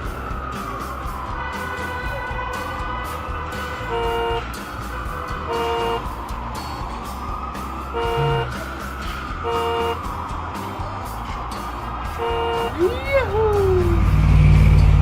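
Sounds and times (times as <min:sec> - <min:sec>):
siren wail: 0:00.0 - 0:14.6
background music: 0:00.0 - 0:15.0
cartoon horn honking: 0:01.4 - 0:06.2, 0:07.9 - 0:08.7, 0:09.4 - 0:10.0, 0:12.1 - 0:14.1.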